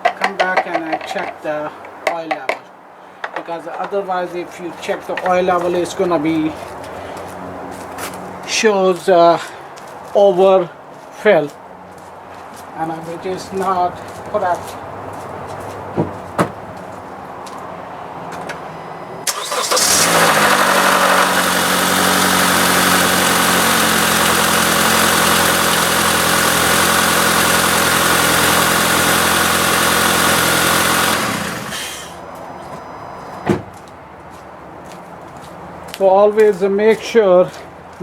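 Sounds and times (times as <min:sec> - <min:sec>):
car engine starting and idling: 0:18.1 - 0:33.4.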